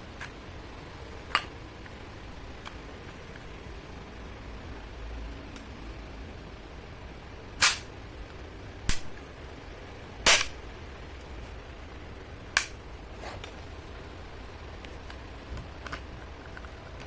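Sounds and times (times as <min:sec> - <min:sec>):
airsoft pistol shots: 0:07.6 - 0:07.9, 0:08.9 - 0:09.2, 0:10.3 - 0:10.6.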